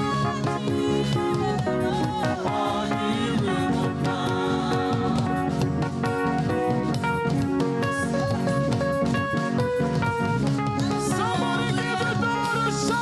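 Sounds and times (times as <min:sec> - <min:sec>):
person singing: 0:00.0 - 0:06.1, 0:10.8 - 0:13.0
upbeat music with guitar and drums: 0:00.0 - 0:13.0.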